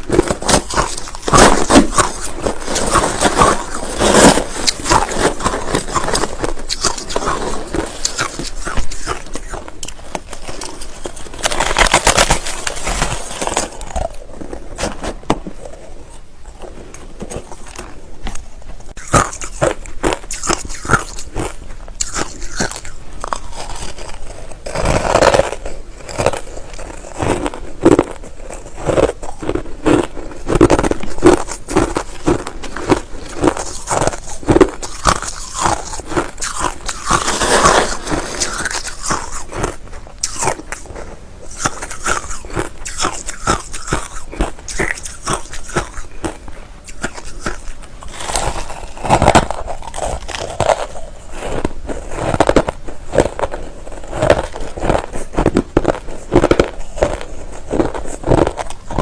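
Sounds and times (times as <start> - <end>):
person crunching ice: 0.0 - 59.0.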